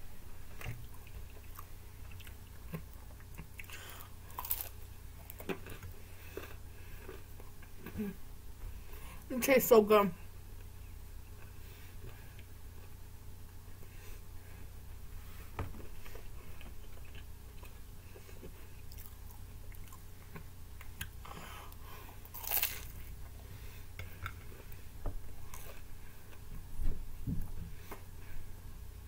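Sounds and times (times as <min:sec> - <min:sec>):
faint low hum: 0:00.0 - 0:29.0
crunchy bite: 0:03.6 - 0:05.4, 0:22.2 - 0:23.0
chewing and biting pizza: 0:22.2 - 0:23.2.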